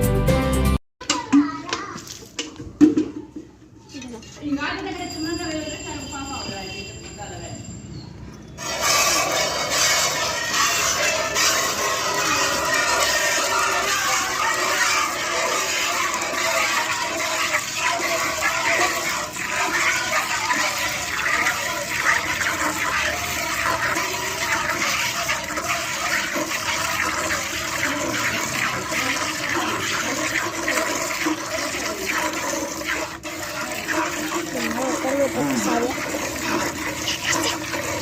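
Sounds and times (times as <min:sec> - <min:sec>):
milk squirting into a pail: 0:08.6 - 0:38.0.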